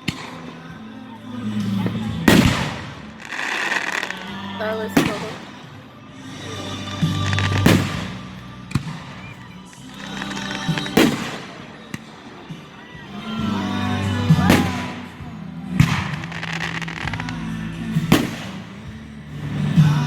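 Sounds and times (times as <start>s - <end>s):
fireworks bangs: 0.0s - 20.0s
music playing: 0.0s - 20.0s
rising firework whistle: 6.3s - 13.3s.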